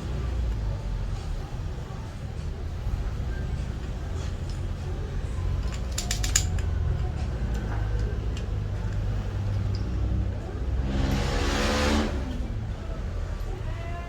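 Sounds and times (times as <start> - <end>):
metal tool parts clicking: 5.5 - 10.0.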